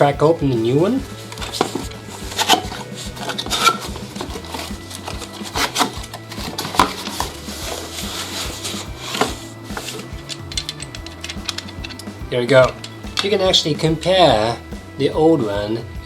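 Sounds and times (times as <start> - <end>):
packaging rustling: 1.0 - 13.4.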